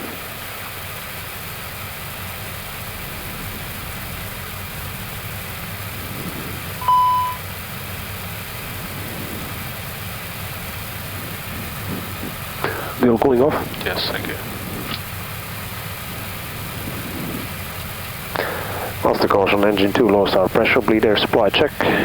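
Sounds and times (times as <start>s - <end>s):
cockpit hum: 0.0s - 22.0s
short electronic beep: 6.8s - 7.4s.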